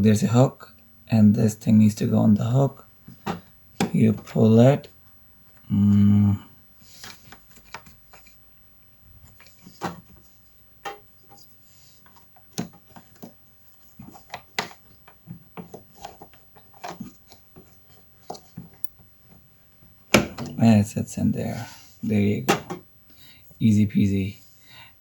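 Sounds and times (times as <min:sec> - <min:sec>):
hands clicking and tapping cord: 0:14.0 - 0:19.4.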